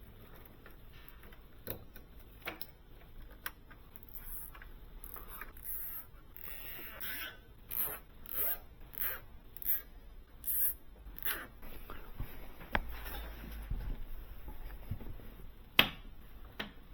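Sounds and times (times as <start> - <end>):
zipping rasping strokes: 4.1 - 9.8, 10.4 - 11.5.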